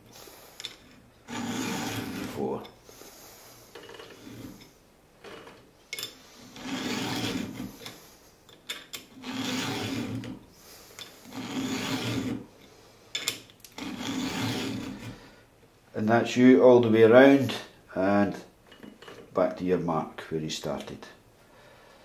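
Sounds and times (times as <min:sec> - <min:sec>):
file rasping on saw chain: 0:01.3 - 0:02.5, 0:06.4 - 0:08.0, 0:09.2 - 0:10.4, 0:11.2 - 0:12.5, 0:13.8 - 0:15.2.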